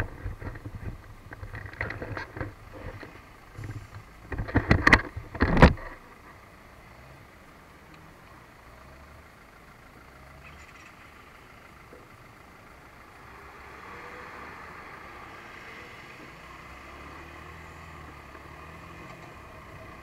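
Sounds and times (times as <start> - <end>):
broad noise: 0.0 - 6.6
motorcycle engine idling: 0.0 - 13.2.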